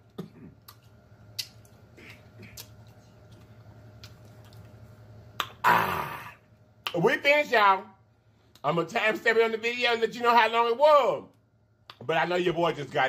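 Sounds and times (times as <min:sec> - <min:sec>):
steady low hum: 0:00.0 - 0:13.0
chewing and swallowing: 0:00.2 - 0:05.6
wet mouth clicks and smacks: 0:00.2 - 0:05.6.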